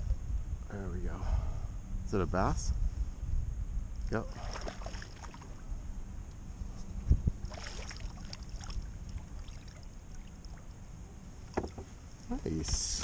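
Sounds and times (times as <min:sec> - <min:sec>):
steady low rumble: 0:00.0 - 0:13.0
dull thump against kayak hull: 0:11.5 - 0:12.0.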